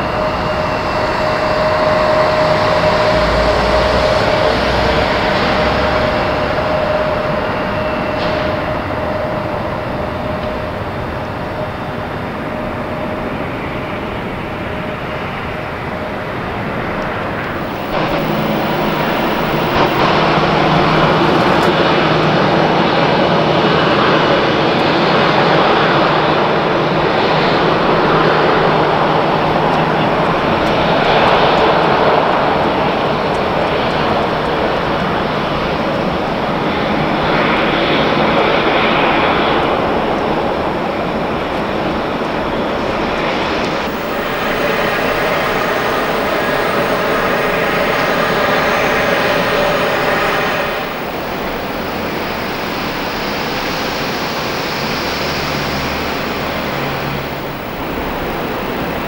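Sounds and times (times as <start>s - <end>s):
steady whining tones: 0.0s - 36.4s, 42.7s - 59.0s
jet engines rushing: 0.0s - 40.6s, 42.2s - 59.0s.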